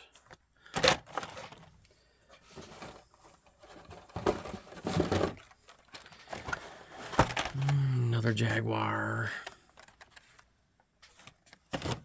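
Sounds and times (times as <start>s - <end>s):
plastic packaging rustling: 0.7s - 8.2s.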